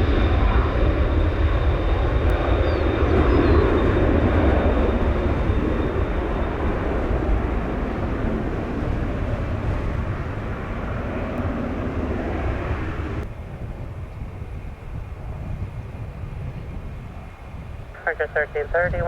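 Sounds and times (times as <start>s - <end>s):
jet airliner engine roar: 0.0s - 19.0s
wind rumbling on microphone: 0.0s - 19.0s.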